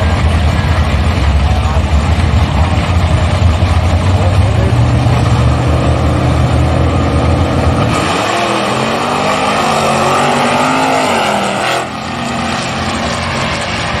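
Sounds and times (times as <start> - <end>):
drag car engines at full throttle: 0.0 - 14.0.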